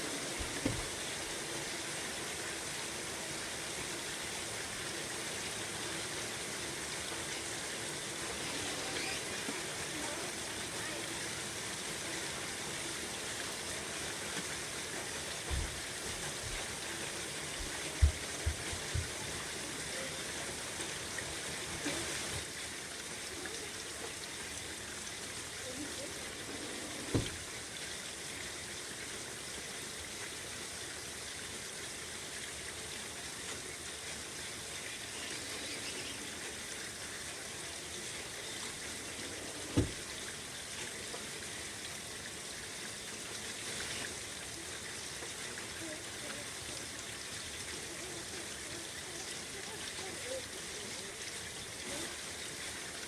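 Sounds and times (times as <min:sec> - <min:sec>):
steady rain falling: 0:00.0 - 0:53.0
screen door thumps: 0:00.4 - 0:01.0, 0:27.1 - 0:27.4, 0:39.8 - 0:40.0.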